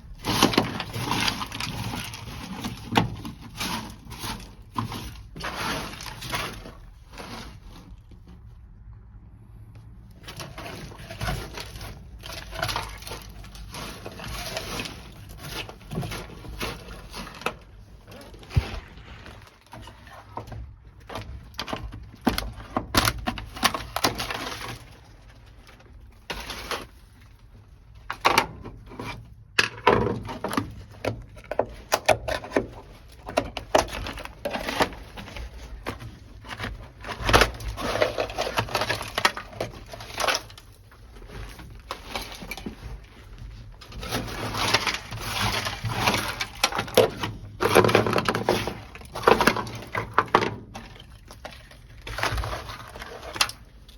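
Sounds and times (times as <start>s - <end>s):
brittle mat cracking off metal: 0.1s - 7.7s, 29.7s - 53.9s.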